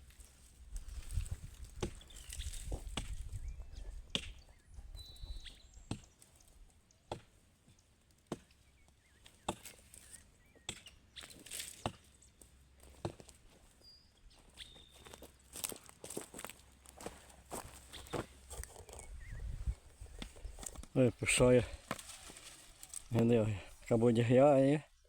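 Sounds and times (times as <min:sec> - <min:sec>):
hand tool chopping wood: 0:07.1 - 0:07.3, 0:09.3 - 0:09.9, 0:10.7 - 0:12.1.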